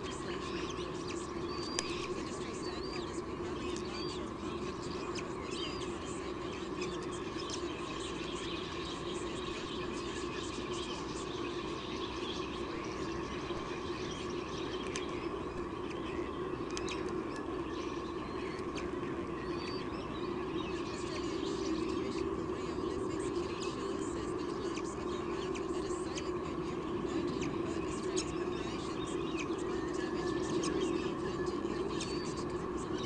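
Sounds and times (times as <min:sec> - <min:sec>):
birds chirping: 0:00.0 - 0:33.0
steady hum: 0:00.0 - 0:33.0.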